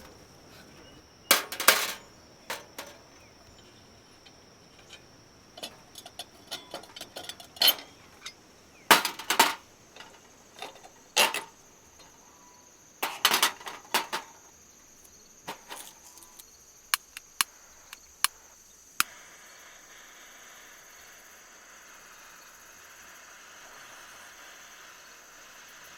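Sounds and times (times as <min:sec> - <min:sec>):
knocks and clinks of hard objects: 0:00.0 - 0:12.1, 0:13.0 - 0:14.4, 0:15.5 - 0:16.0
high insect drone: 0:00.0 - 0:25.9.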